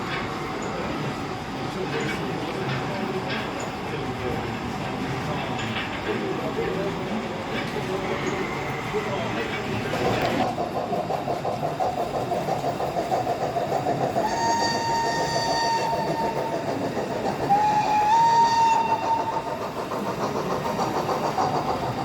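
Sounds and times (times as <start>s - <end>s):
steam locomotive whistle: 14.2s - 19.6s.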